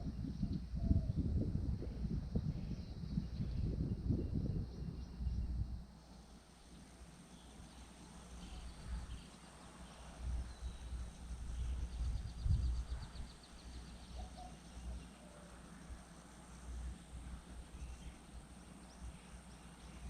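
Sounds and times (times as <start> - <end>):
songbird calls: 7.3 - 15.6.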